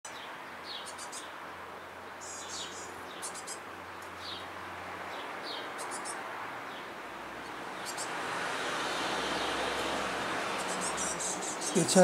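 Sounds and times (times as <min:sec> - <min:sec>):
birds chirping: 0:00.1 - 0:12.0.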